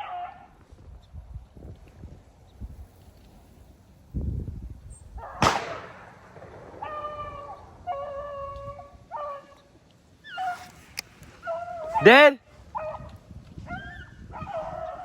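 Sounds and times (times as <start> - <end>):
hounds baying: 0.0 - 0.6, 6.8 - 10.7, 11.3 - 15.0
shotgun shot echoing: 5.4 - 7.8.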